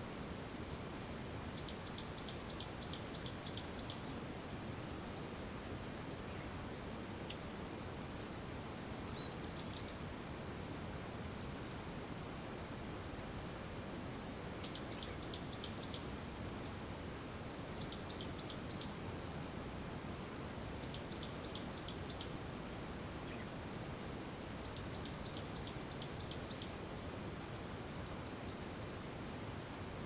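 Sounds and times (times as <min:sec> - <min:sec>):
rain hiss: 0:00.0 - 0:30.0
songbird chirping: 0:01.5 - 0:04.1, 0:09.1 - 0:10.1, 0:14.6 - 0:16.2, 0:17.8 - 0:19.1, 0:20.8 - 0:22.6, 0:24.6 - 0:26.8.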